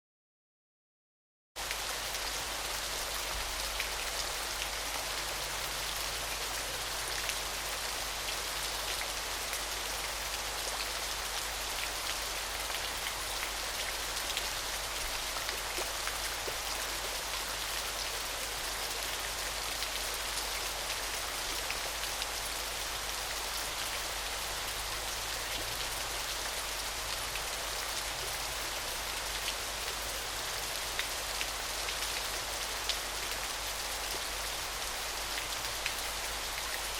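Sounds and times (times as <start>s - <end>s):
small waterfall splashing: 1.6s - 36.9s.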